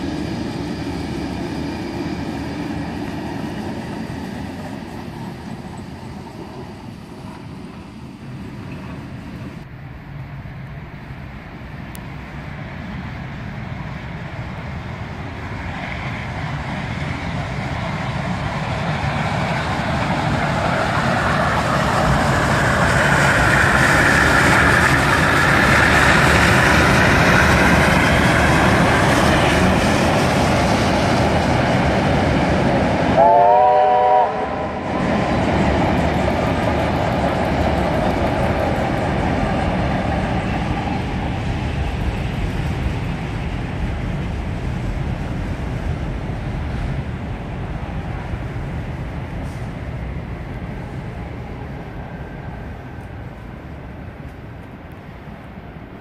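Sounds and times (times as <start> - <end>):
steam train rumble and wheel clatter: 0.0 - 56.0
train warning horn blast: 33.2 - 34.9.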